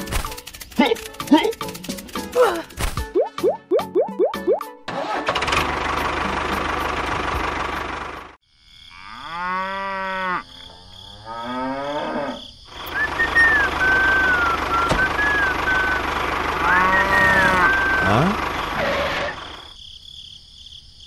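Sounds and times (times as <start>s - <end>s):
cow mooing: 8.9s - 12.5s, 16.6s - 19.4s.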